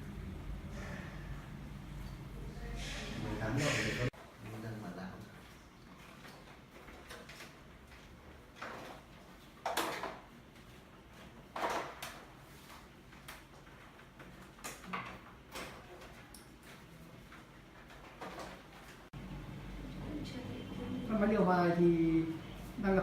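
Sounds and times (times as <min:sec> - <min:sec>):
objects knocking and scraping: 0:11.2 - 0:12.4.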